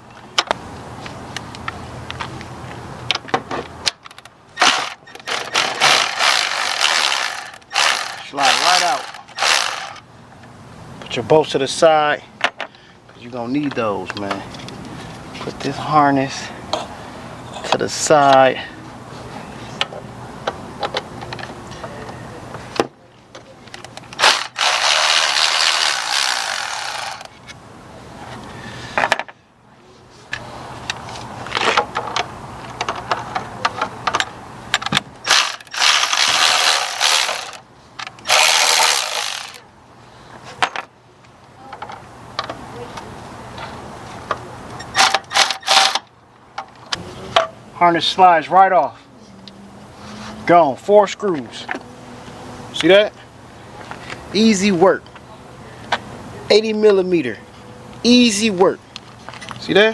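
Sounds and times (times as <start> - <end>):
parts being handled: 3.1 - 10.0, 23.6 - 27.6, 30.9 - 39.6
ratchet wrench clicking: 4.6 - 10.0, 24.2 - 27.3, 35.3 - 37.6, 38.3 - 39.6.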